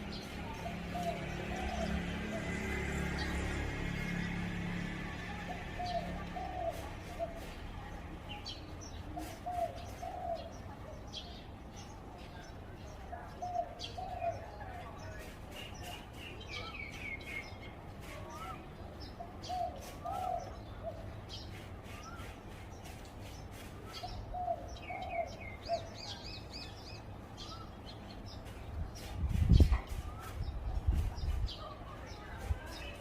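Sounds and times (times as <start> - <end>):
small birds chirping: 0.0 - 33.0
dove cooing: 5.3 - 7.6, 19.3 - 21.1.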